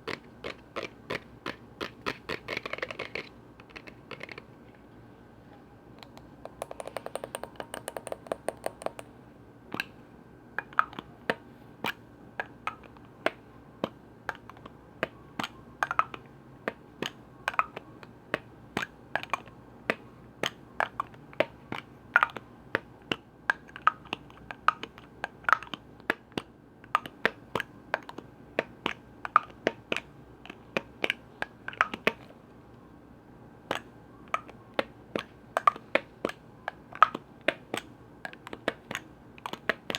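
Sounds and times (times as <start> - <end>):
tapping on containers and lids: 6.0 - 9.1.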